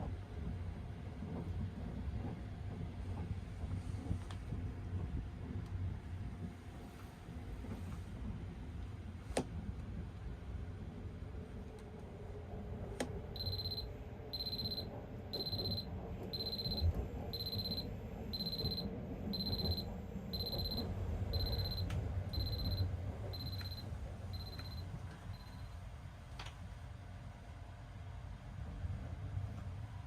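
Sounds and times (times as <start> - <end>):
low steady rumble: 3.8 - 26.0
electronic alarm beeping: 13.4 - 25.8.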